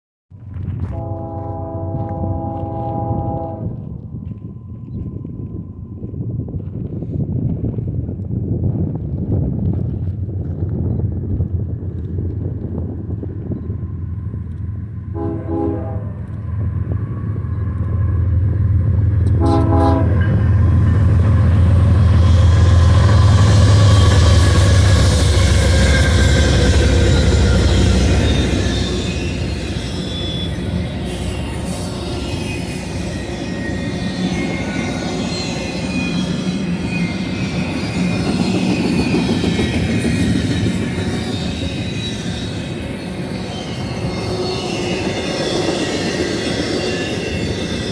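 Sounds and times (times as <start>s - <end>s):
locomotive engine rumble: 0.4s - 41.9s
train air horn toots: 0.9s - 3.8s, 15.1s - 16.3s, 19.2s - 20.4s
faint thin wheel squeal: 25.8s - 39.1s.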